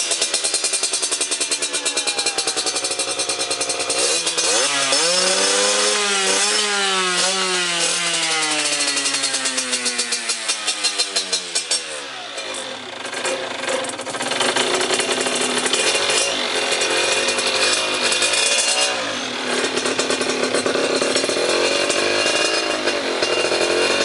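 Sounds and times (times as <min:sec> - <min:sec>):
two-stroke motorcycle engine revving: 0:00.0 - 0:24.0.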